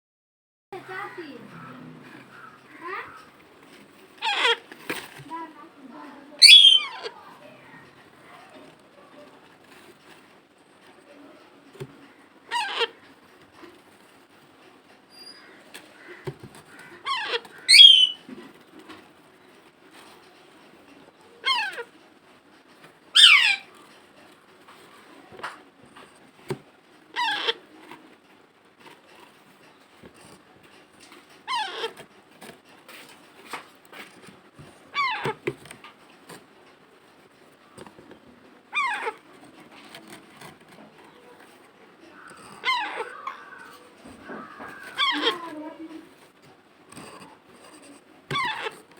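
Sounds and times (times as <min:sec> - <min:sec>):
parrot calling: 0:04.2 - 0:04.7, 0:06.4 - 0:07.2, 0:12.5 - 0:13.0, 0:15.1 - 0:18.2, 0:21.4 - 0:21.9, 0:23.1 - 0:23.7, 0:27.1 - 0:27.7, 0:31.4 - 0:32.0, 0:34.9 - 0:35.4, 0:38.7 - 0:39.2, 0:42.1 - 0:45.6, 0:48.3 - 0:48.7.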